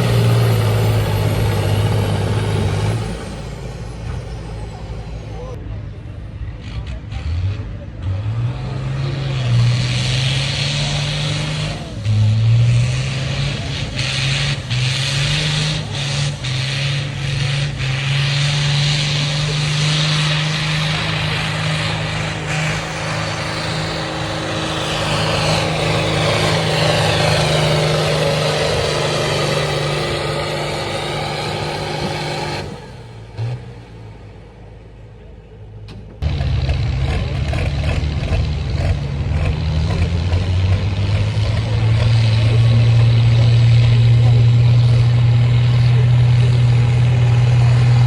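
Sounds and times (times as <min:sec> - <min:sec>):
tractor engine at high revs: 0:00.0 - 0:48.0.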